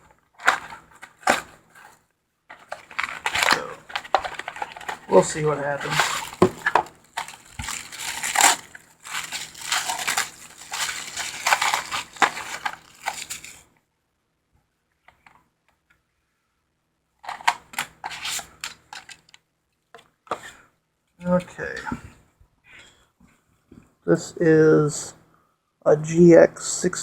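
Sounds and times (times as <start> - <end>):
cardboard box tearing and crushing: 0.4 - 1.9, 2.5 - 13.6, 17.3 - 19.2.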